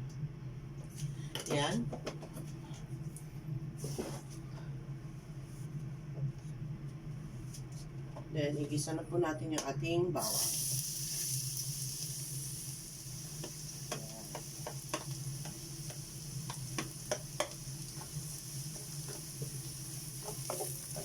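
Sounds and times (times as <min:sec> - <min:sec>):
garlic sizzling in oil: 0:10.2 - 0:21.0.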